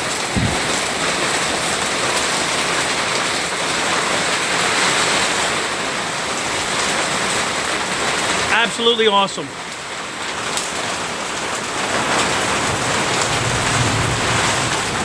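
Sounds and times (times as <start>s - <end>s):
heavy rain pouring: 0.0s - 15.0s
low thump: 0.3s - 0.9s.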